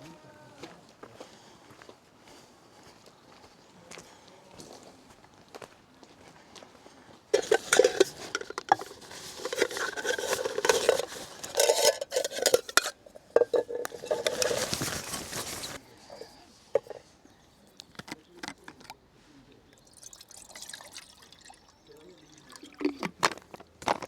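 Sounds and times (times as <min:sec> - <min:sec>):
metal pots clattering: 0:07.4 - 0:17.0.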